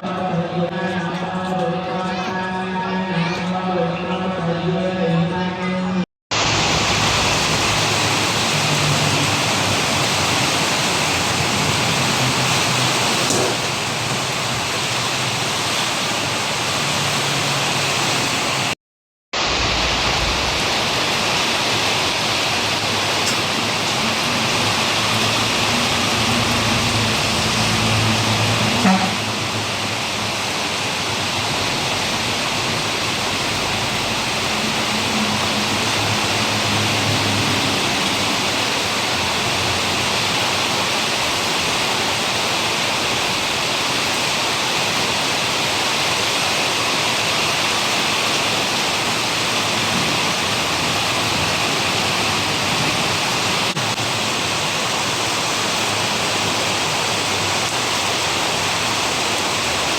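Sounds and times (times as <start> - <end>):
heavy rain pouring: 6.3 - 18.8, 19.4 - 59.9.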